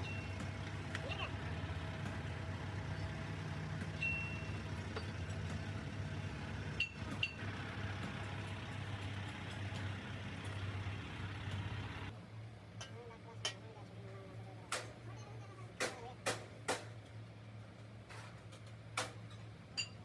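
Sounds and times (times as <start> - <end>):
machine hum: 0.0 - 12.1.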